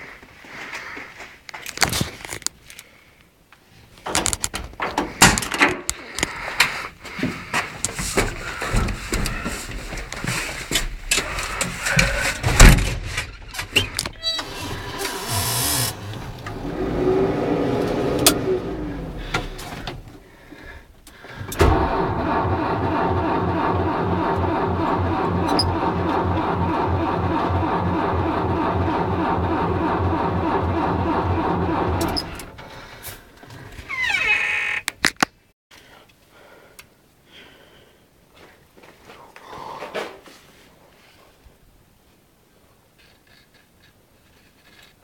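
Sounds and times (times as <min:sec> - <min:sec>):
diesel engine cranking on starter: 0:14.2 - 0:20.3, 0:21.4 - 0:32.9
whirring burst: 0:14.4 - 0:20.1, 0:21.6 - 0:32.6.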